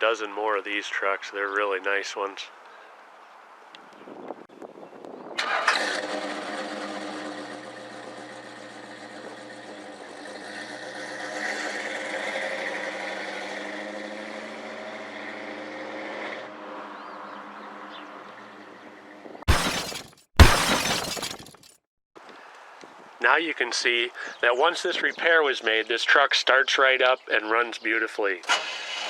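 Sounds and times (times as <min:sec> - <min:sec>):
pickup truck engine running: 0:05.4 - 0:11.1.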